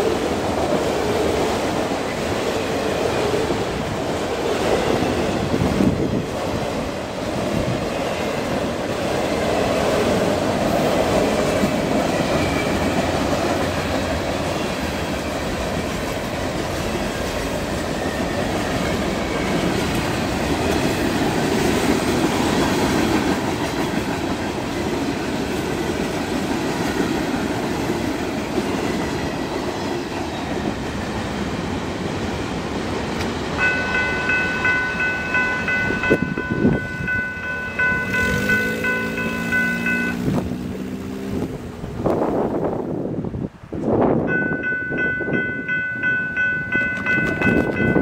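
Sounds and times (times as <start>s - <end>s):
freight cars rolling on rails: 0.0s - 48.0s
level crossing bell ringing: 33.6s - 40.3s, 44.3s - 48.0s.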